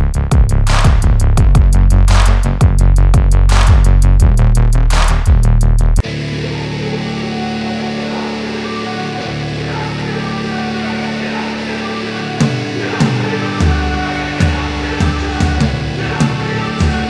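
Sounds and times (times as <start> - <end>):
heavy bass: 0.0 - 17.0
drum hits: 0.3 - 4.1
guitar chords: 6.0 - 17.0.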